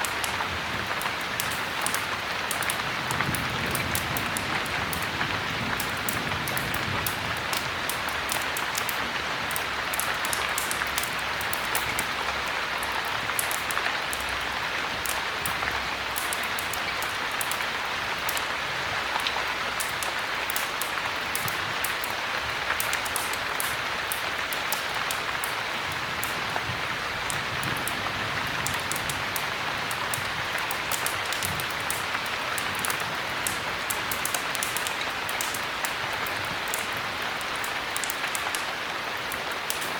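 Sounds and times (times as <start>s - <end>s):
small sharp ticks: 0.0s - 5.1s, 5.8s - 12.2s, 15.0s - 17.7s, 19.2s - 25.6s, 30.9s - 38.7s
heavy rain: 0.0s - 39.9s.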